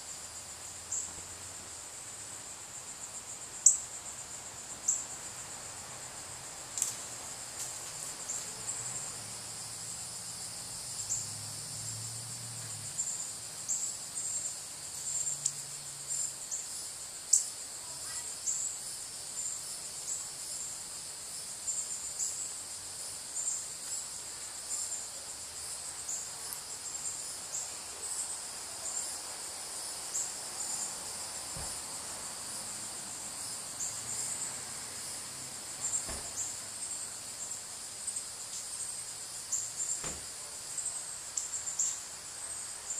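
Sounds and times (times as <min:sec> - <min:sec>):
high-pitched insect chorus: 0:00.0 - 0:42.9.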